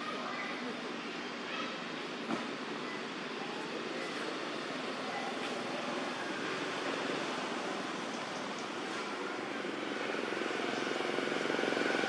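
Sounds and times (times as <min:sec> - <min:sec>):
engine running steadily: 0:02.2 - 0:12.0.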